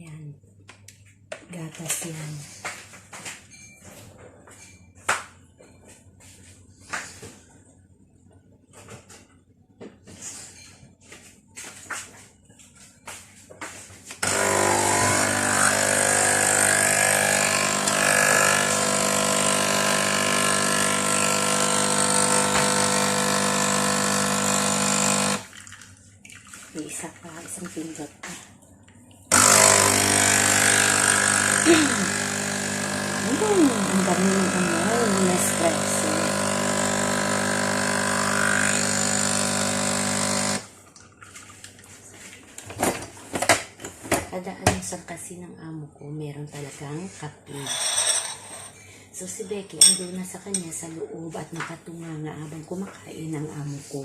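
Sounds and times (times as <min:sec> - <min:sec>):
coffee machine pump buzzing: 0:14.2 - 0:25.5, 0:29.3 - 0:40.7.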